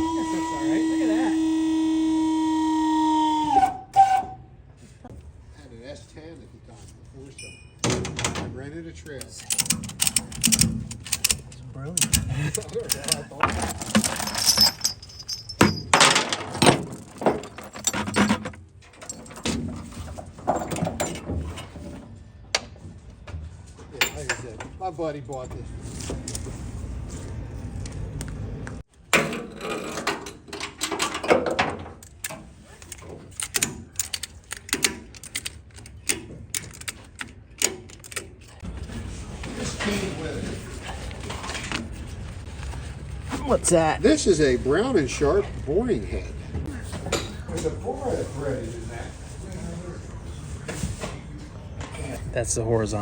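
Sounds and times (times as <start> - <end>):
metal clanks and knocks: 7.8 - 8.7, 9.3 - 22.9, 29.1 - 38.6.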